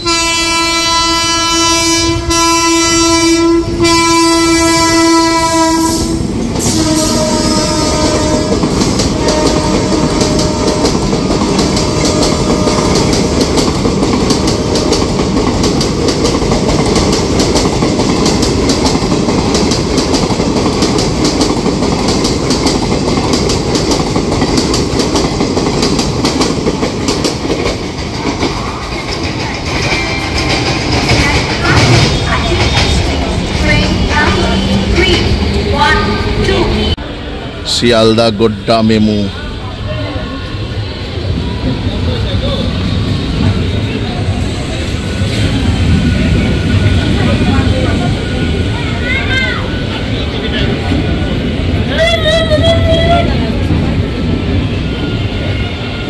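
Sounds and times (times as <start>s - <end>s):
train horn blast: 0.0s - 13.5s, 31.7s - 37.0s
train wheels rumbling and clattering: 1.0s - 56.0s.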